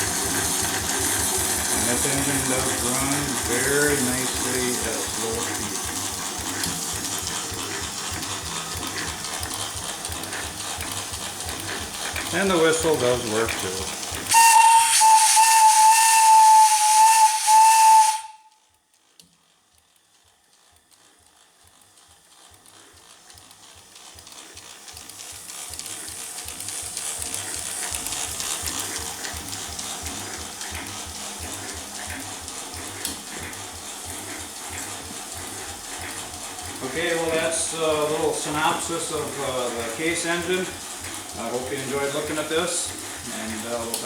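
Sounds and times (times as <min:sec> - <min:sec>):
steam whistle: 0:00.0 - 0:05.6, 0:14.3 - 0:18.6
engine exhaust beats and hiss: 0:00.0 - 0:18.4, 0:21.7 - 0:44.0.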